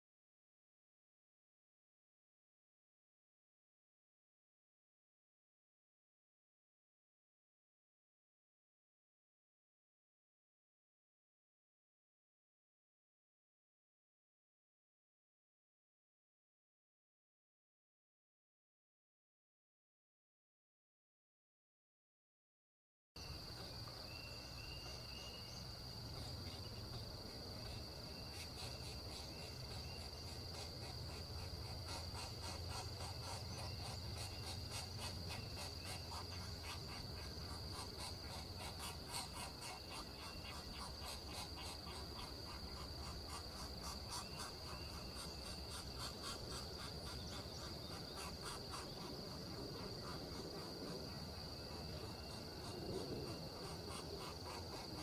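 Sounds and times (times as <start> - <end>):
fast dense insect ticking: 25.8 - 55.0.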